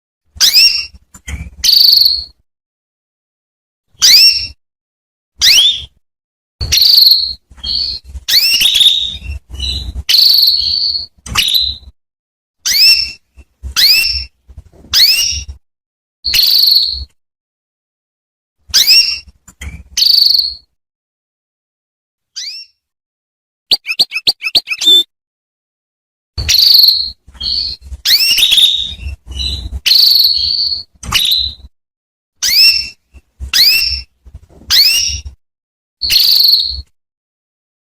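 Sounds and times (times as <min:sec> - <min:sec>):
canary chirping: 0:00.4 - 0:02.4, 0:04.0 - 0:04.6, 0:05.4 - 0:06.0, 0:06.6 - 0:12.0, 0:12.6 - 0:15.6, 0:16.3 - 0:17.2, 0:18.7 - 0:20.7, 0:22.4 - 0:22.8, 0:23.7 - 0:25.1, 0:26.4 - 0:31.7, 0:32.4 - 0:35.4, 0:36.0 - 0:36.9.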